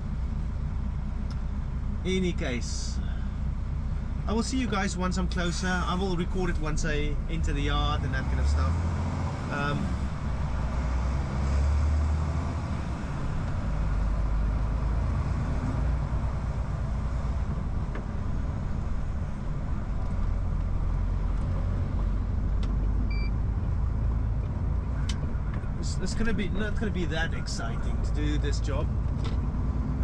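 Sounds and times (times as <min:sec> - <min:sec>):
short beep: 0:23.1 - 0:23.4.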